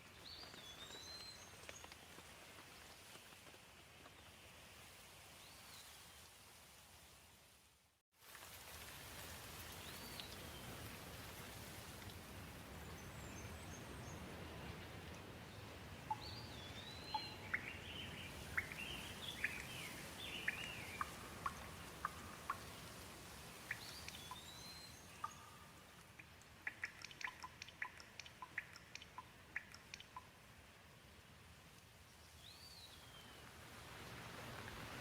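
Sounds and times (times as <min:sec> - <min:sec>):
light rain hissing: 0:00.0 - 0:35.0
bird chirping: 0:16.1 - 0:22.6, 0:23.7 - 0:30.3
water drips ticking: 0:18.5 - 0:30.5.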